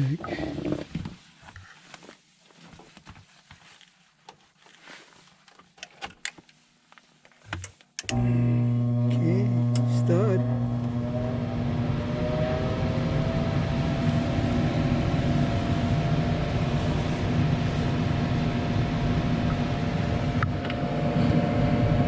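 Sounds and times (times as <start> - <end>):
furnace inducer fan humming: 8.0 - 22.0.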